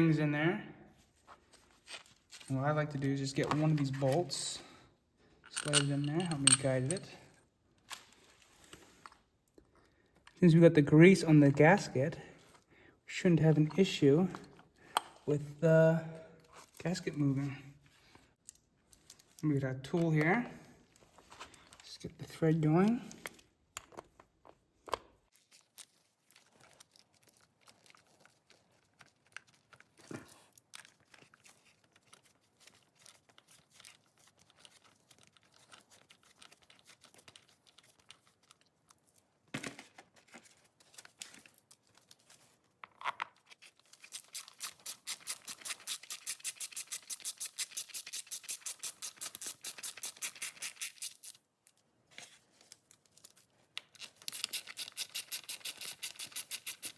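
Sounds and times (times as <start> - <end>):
hand tools clicking and scraping: 5.4 - 7.3.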